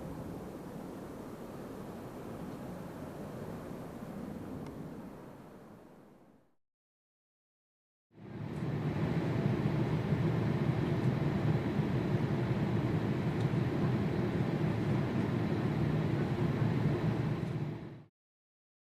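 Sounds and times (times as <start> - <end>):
jet engines roaring: 8.2 - 18.1.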